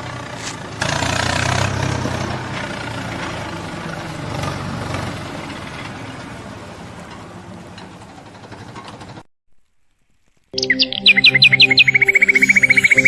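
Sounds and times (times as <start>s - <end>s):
heavy vehicle engine running: 0.0s - 9.3s.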